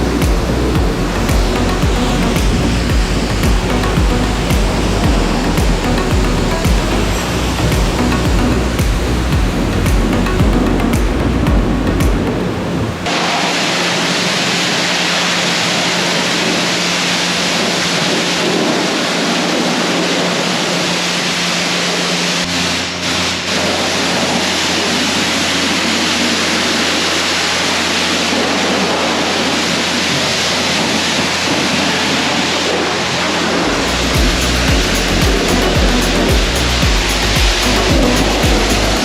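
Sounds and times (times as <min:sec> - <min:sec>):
steady low hum: 0:00.0 - 0:13.1, 0:22.5 - 0:39.0
pressure washer spraying water: 0:22.5 - 0:39.0.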